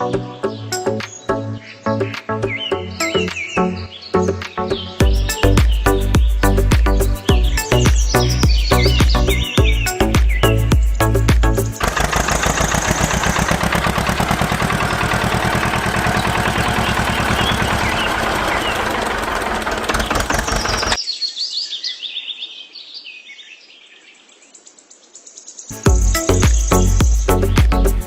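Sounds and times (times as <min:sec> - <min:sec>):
birds chirping: 0:00.0 - 0:28.0
small engine knocking: 0:11.8 - 0:21.0.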